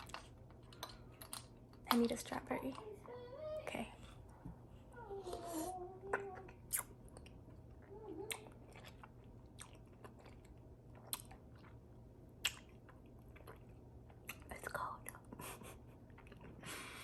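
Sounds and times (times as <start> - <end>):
person chewing fruit: 0.0 - 3.3, 5.3 - 17.0.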